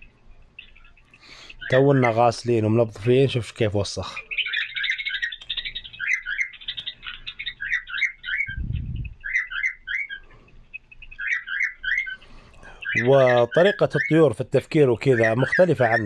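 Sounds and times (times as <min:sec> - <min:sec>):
small birds chirping: 0:00.0 - 0:16.0
low rumble: 0:08.5 - 0:09.2.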